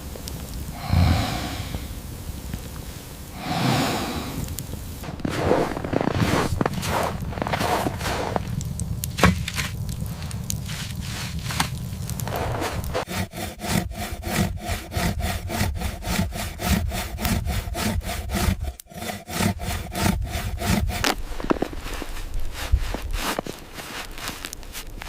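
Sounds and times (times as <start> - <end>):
saw cutting through wood: 10.5 - 21.7.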